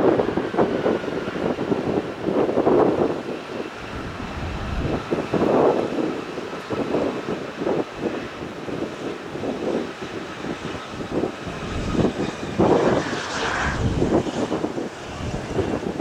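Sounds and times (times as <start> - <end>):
airliner engines whining and rumbling: 0.0 - 16.0
wind buffeting microphone: 0.0 - 16.0.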